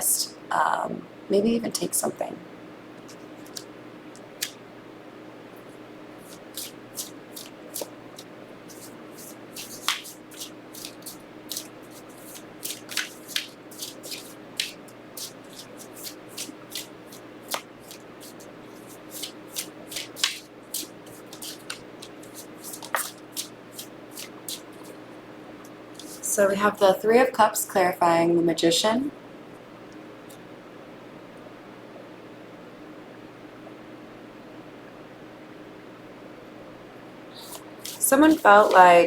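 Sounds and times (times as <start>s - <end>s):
faint steady hum: 0.0s - 39.0s
cards being shuffled: 3.0s - 3.7s, 6.2s - 25.0s, 26.0s - 26.3s, 37.4s - 38.9s.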